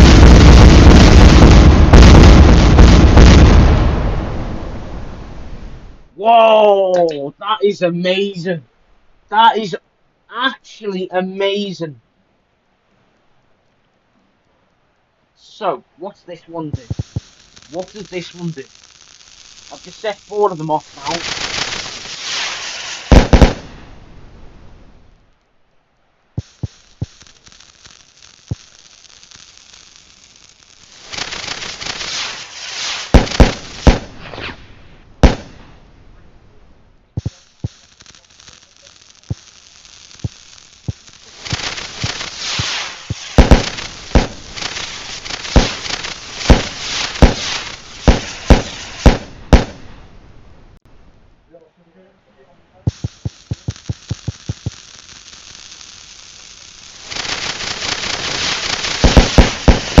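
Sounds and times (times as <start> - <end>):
fireworks banging and crackling: 0.0 - 5.6, 16.6 - 24.3, 26.4 - 35.8, 37.2 - 50.1, 52.9 - 60.0.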